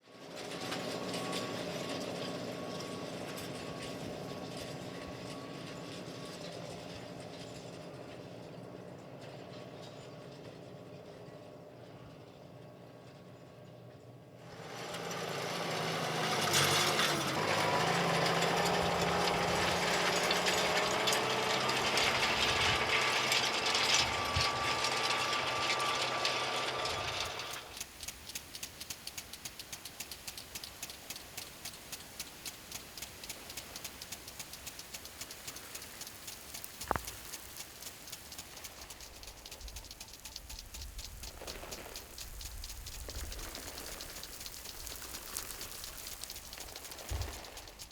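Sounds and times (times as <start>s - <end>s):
machine humming: 14.5s - 47.9s
even ticking: 15.2s - 47.9s.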